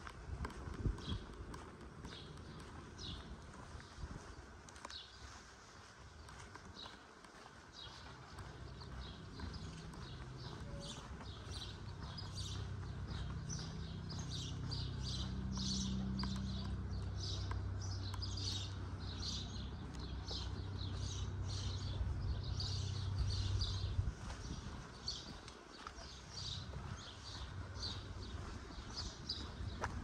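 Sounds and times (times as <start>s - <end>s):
small birds chirping: 0.7s - 30.0s.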